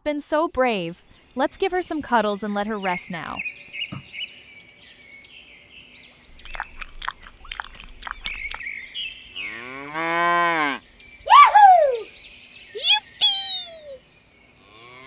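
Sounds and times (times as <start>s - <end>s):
faint birdsong: 0.4s - 15.0s
cow mooing: 9.4s - 10.8s.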